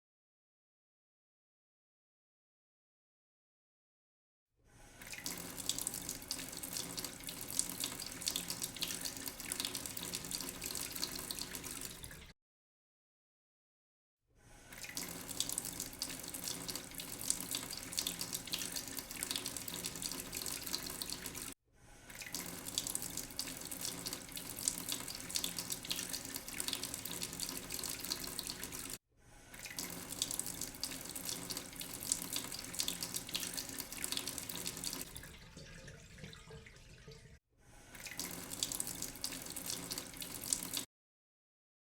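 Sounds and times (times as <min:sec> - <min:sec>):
tap water running into sink: 0:05.0 - 0:12.3, 0:14.7 - 0:37.4, 0:38.0 - 0:40.9.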